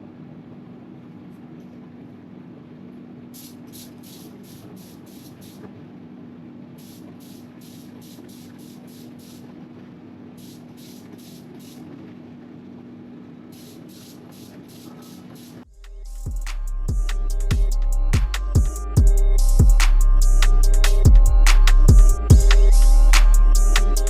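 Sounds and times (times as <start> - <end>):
steady low hum: 0.0 - 24.0
spray gun hissing bursts: 3.4 - 5.6, 6.8 - 9.5, 10.4 - 11.9, 13.5 - 15.7.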